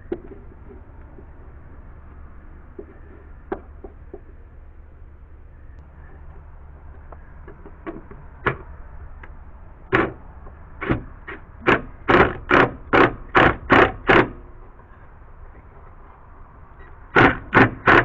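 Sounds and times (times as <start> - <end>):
hammer striking wood: 10.8 - 14.4, 17.1 - 18.0.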